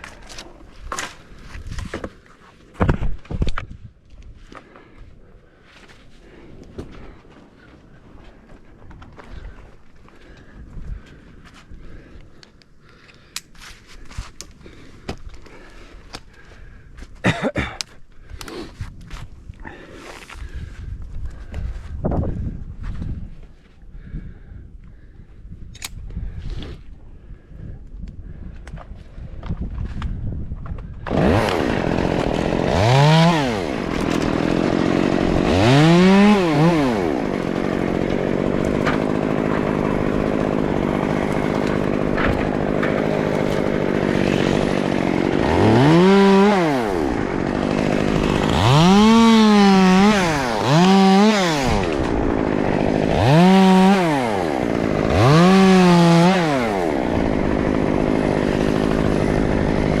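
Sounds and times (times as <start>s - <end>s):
chainsaw starting: 30.9s - 60.0s
chainsaw idling and revving: 31.0s - 60.0s.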